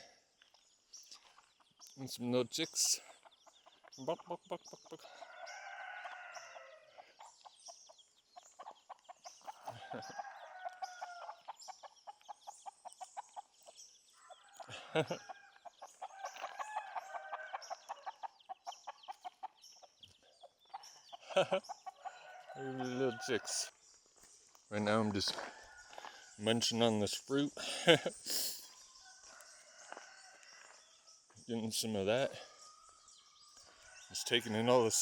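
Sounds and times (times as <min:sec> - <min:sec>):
chicks cheeping: 0:00.0 - 0:23.7
hen clucking: 0:02.6 - 0:07.5, 0:14.5 - 0:23.7.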